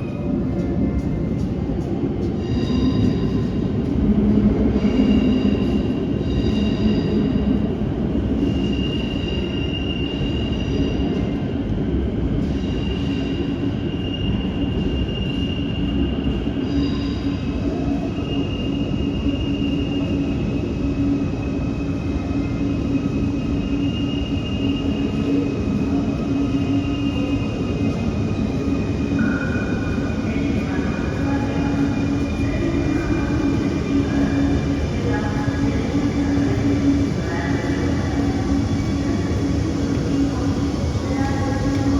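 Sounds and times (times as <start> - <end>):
train rumbling on rails: 0.0 - 41.9.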